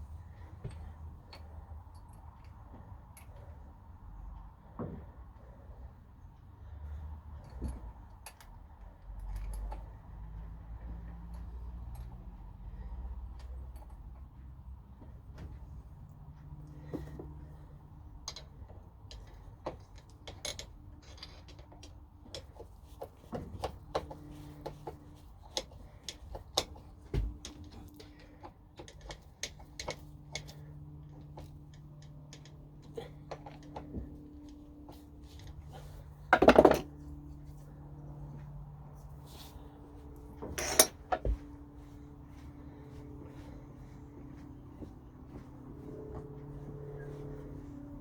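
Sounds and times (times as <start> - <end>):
faint low hum: 0.0 - 48.0.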